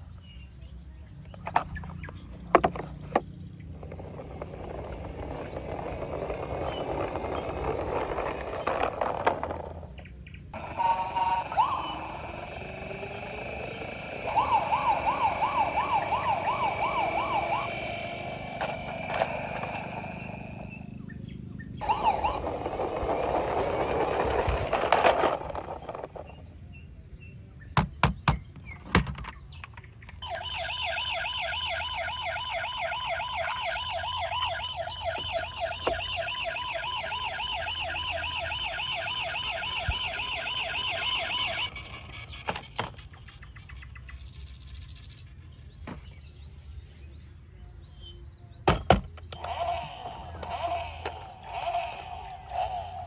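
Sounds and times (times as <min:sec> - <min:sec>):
warbling electronic toy siren: 0:03.9 - 0:09.7, 0:10.5 - 0:21.0, 0:21.8 - 0:26.3, 0:30.2 - 0:42.8, 0:49.3 - 0:53.0.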